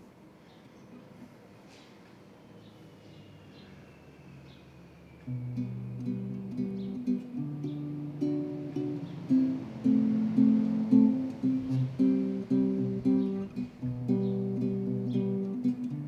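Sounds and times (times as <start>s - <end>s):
acoustic guitar strumming: 5.3s - 16.0s.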